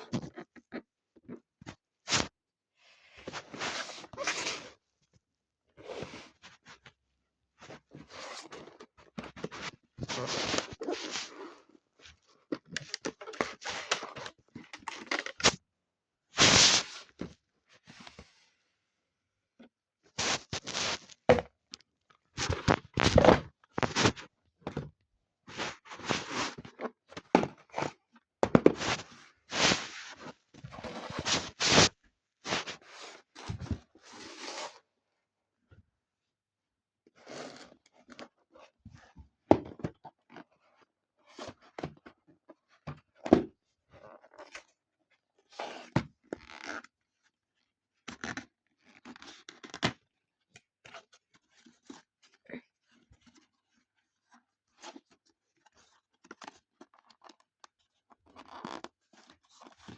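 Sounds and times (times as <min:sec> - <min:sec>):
cardboard and plastic rustling: 0:08.4 - 0:11.4, 0:16.4 - 0:17.2, 0:20.2 - 0:21.5, 0:22.4 - 0:24.9, 0:25.5 - 0:31.9, 0:32.5 - 0:33.8.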